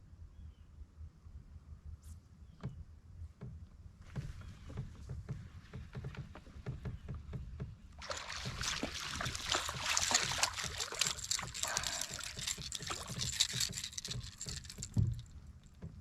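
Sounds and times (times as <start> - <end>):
water splashing beside a kayak: 8.0 - 15.4.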